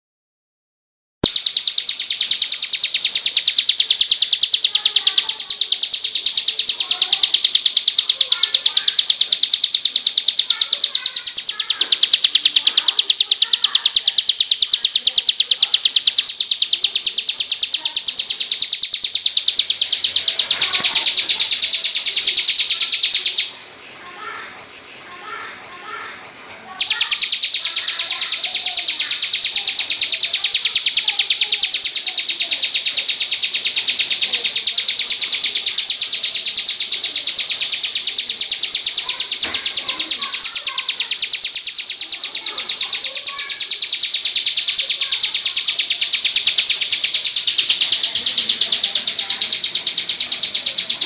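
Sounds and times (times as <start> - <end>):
bird singing fast high notes: 1.2 - 23.5.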